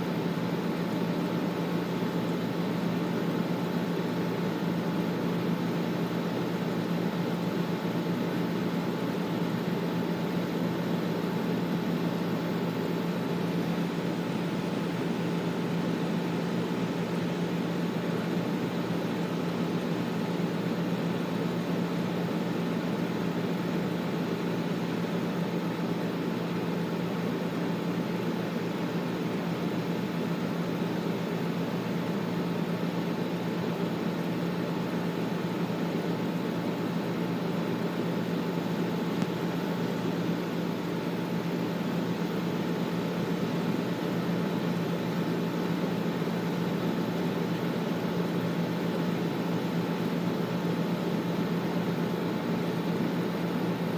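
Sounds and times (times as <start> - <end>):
air conditioner fan rushing: 0.0 - 53.9.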